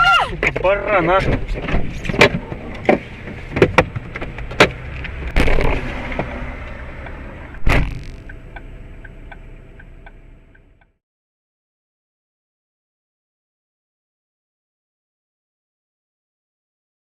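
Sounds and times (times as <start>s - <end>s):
loud thump: 4.6s - 6.4s, 7.6s - 8.3s.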